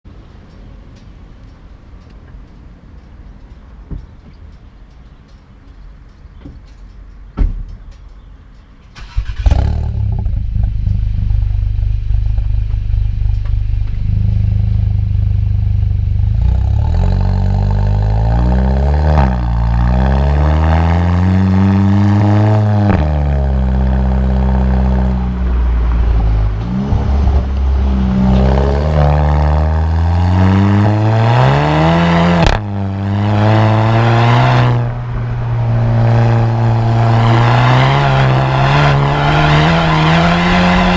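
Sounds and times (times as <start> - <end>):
exhaust crack: 5.7 - 40.9
car engine starting and revving: 8.9 - 40.9.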